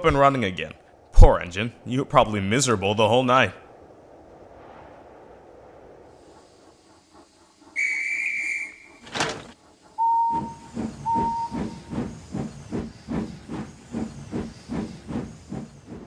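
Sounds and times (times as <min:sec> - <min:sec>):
steam locomotive chuffing: 0:06.4 - 0:16.0
steam whistle: 0:07.8 - 0:09.0, 0:10.0 - 0:11.8.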